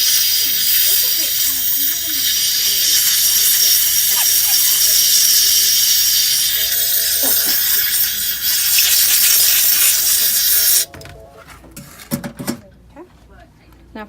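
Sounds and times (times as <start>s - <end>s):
compressed air hissing: 0.0s - 10.9s.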